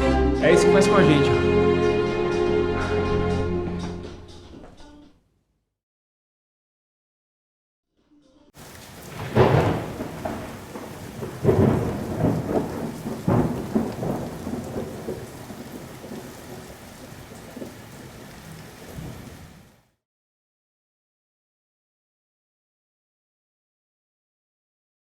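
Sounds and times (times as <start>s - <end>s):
thunder rumbling: 8.6s - 19.7s
steady rain: 8.6s - 19.9s.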